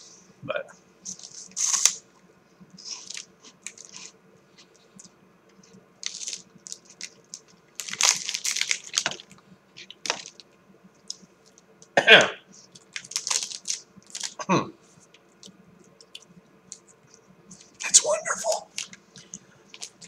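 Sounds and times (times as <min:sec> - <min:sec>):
crunching corn puff stick: 0:01.0 - 0:02.1, 0:02.8 - 0:11.7, 0:12.6 - 0:14.4.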